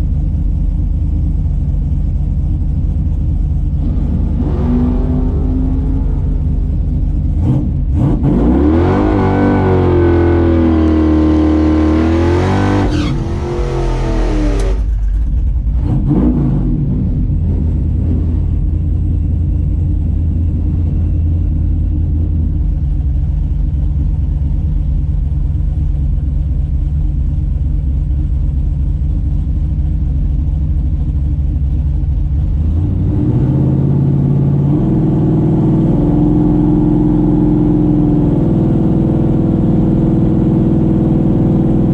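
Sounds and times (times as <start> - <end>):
engine low rumble: 0.0 - 41.9
car engine revving hard: 3.7 - 14.9.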